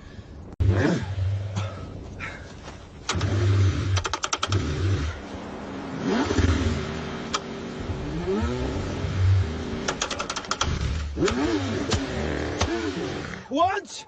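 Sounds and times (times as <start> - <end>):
sharp clicks: 3.0 - 4.7, 9.8 - 12.7
car starter cranking engine: 3.0 - 5.0, 9.8 - 12.9.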